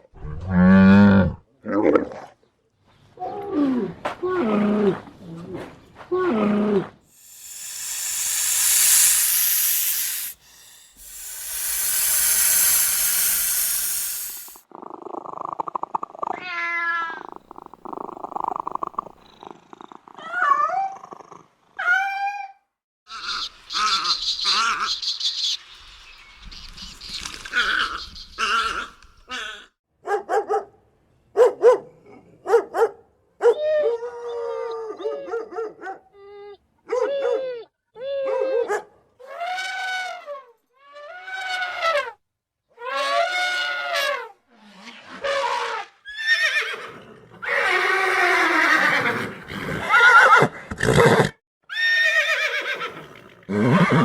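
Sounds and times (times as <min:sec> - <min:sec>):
animal calls rising and falling: 0:07.2 - 0:14.6
hissing noise: 0:07.2 - 0:14.6.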